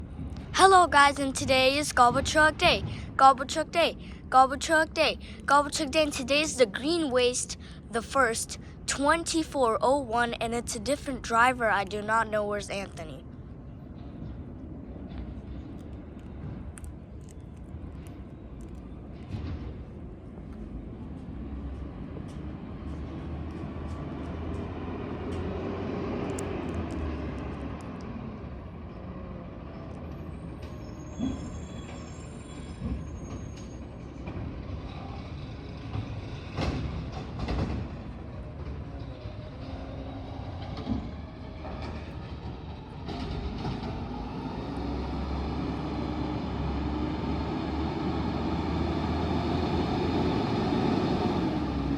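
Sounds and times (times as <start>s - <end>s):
high squeal: 30.6s - 34.1s.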